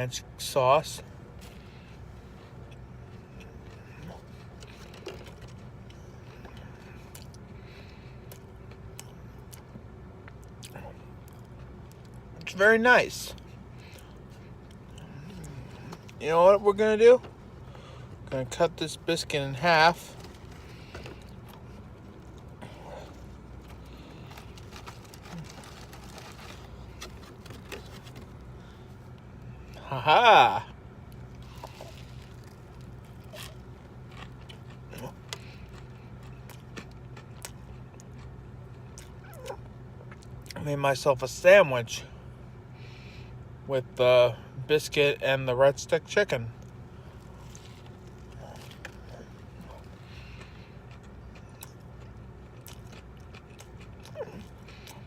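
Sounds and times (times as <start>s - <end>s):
low background hum: 0.0s - 55.0s
person chewing: 2.6s - 12.2s, 13.4s - 16.2s, 20.0s - 28.8s, 31.1s - 40.6s, 46.6s - 55.0s
biscuit crackling: 23.1s - 28.8s.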